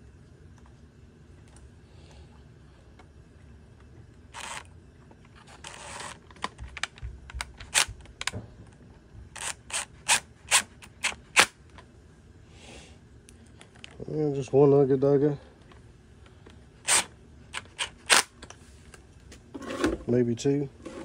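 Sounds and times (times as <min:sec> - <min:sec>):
clicks and knocks of tools and plastic: 0:04.4 - 0:09.6
rustling scrapes: 0:19.5 - 0:20.1, 0:20.8 - 0:21.0.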